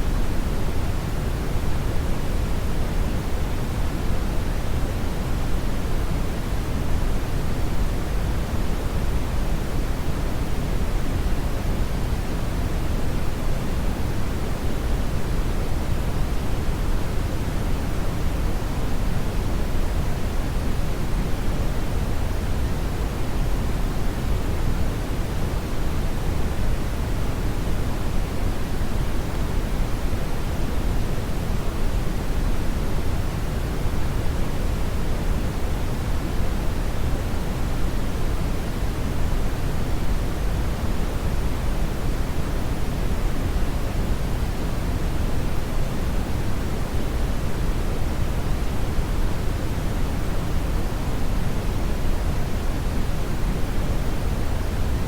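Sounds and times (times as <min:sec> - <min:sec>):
brown noise hiss: 0:00.0 - 0:55.0.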